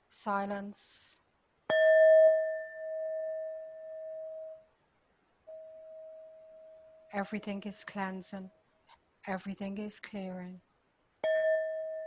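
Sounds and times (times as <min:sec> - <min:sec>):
singing bowl ringing: 0:01.7 - 0:04.7, 0:05.5 - 0:07.2, 0:11.2 - 0:12.0
steady tone: 0:01.7 - 0:04.7, 0:05.4 - 0:08.4.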